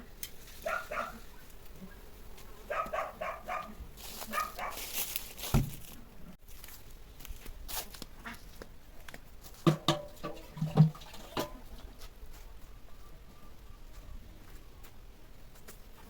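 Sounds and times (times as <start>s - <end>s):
dog barking: 0.6s - 1.5s, 2.7s - 4.9s
loud thump: 5.5s - 5.8s.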